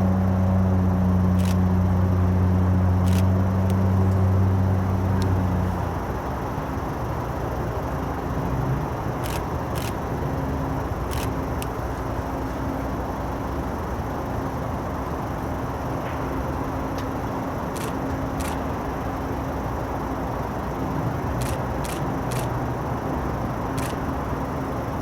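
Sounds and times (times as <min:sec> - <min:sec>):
outdoor rumble: 0:00.0 - 0:25.0
scattered clicks: 0:01.4 - 0:01.7, 0:03.0 - 0:04.3, 0:09.2 - 0:10.1, 0:11.0 - 0:11.8, 0:17.7 - 0:18.8, 0:21.3 - 0:22.6, 0:23.7 - 0:24.1.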